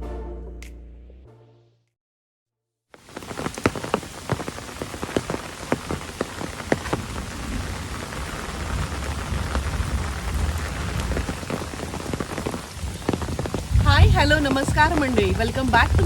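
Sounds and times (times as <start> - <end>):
heavy rain falling: 3.0 - 16.0
raindrops tapping: 3.0 - 16.0
low rumble: 13.6 - 16.0.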